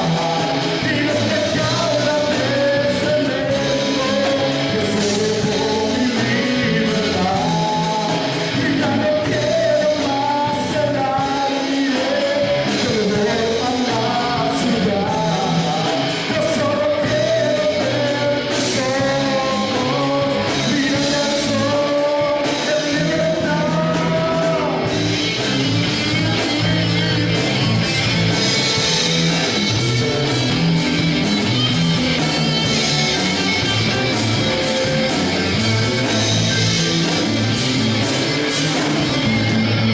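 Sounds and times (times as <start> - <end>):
person singing lead vocal: 0.0 - 30.4
rock guitar music: 0.0 - 39.9.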